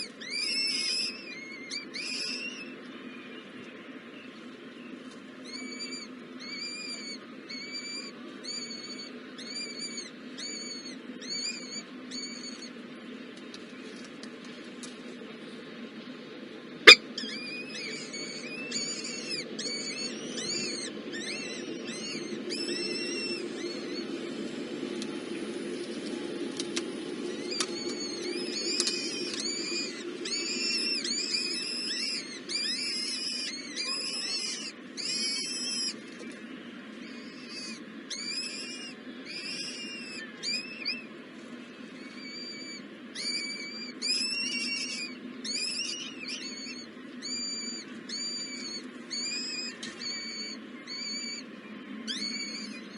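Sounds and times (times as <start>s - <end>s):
baby birds chirping: 0.0s - 2.7s, 16.9s - 24.0s, 27.4s - 36.3s, 42.0s - 51.4s, 52.1s - 52.9s.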